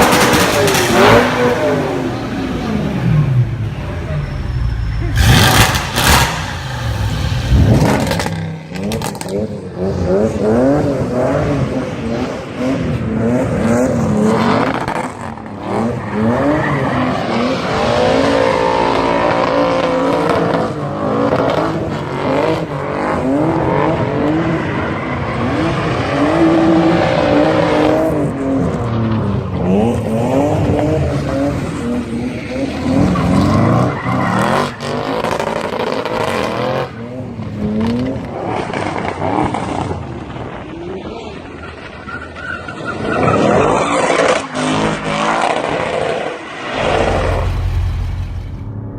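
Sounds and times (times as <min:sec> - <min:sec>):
car accelerating hard: 0:05.1 - 0:41.5.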